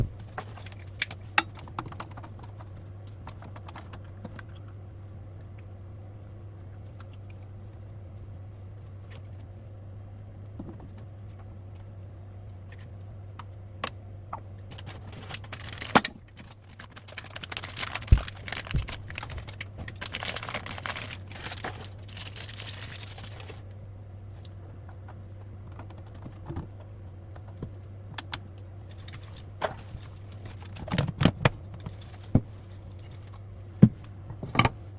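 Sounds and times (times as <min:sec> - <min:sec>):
plastic parts clicking and rattling: 0:00.0 - 0:02.7, 0:14.6 - 0:23.6, 0:28.2 - 0:33.4
steady low hum: 0:00.0 - 0:34.9.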